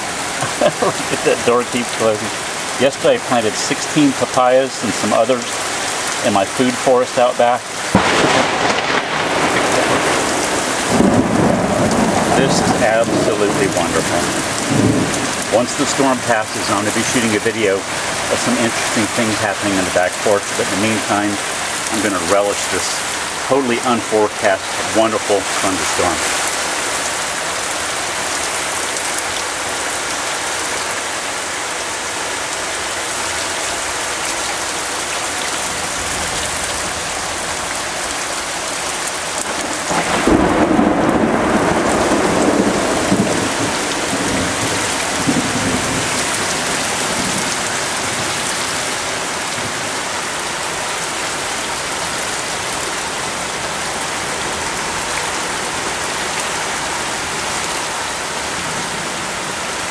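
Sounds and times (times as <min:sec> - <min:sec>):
heavy rain pouring: 0:00.0 - 0:59.9
rolling thunderclap: 0:07.9 - 0:15.6, 0:39.4 - 0:48.3.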